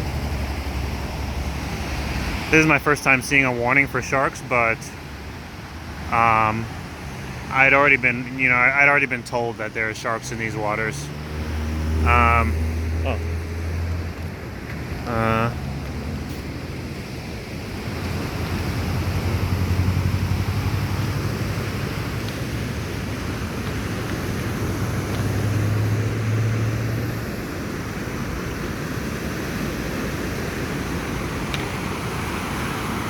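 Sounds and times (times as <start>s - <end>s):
wind: 0.0s - 33.0s
engine passing hum: 10.1s - 17.1s, 18.1s - 23.0s, 23.9s - 27.6s.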